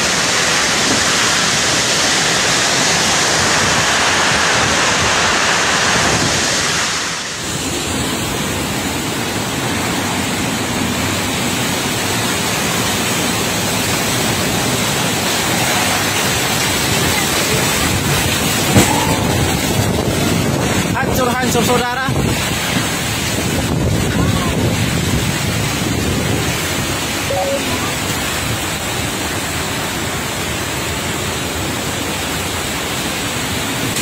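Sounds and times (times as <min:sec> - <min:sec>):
heavy driving rain: 0:00.0 - 0:34.0
storm wind: 0:00.0 - 0:34.0.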